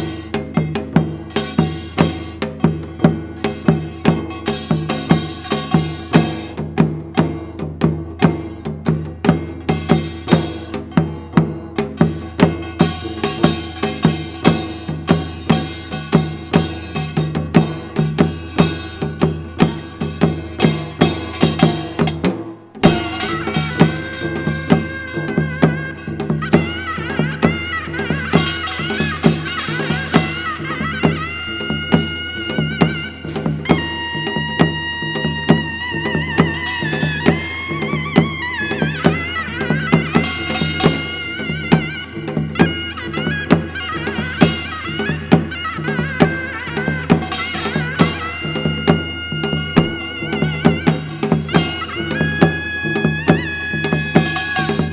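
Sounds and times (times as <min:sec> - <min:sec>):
drums in fast uneven rhythm: 0:00.0 - 0:54.9
folk melody with vibrato: 0:22.8 - 0:54.9.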